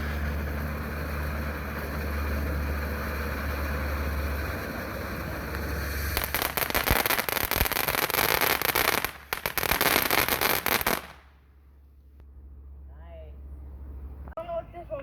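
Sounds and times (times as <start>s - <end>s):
firework crackling pops: 0.0s - 11.4s
firework hissing: 0.0s - 11.4s.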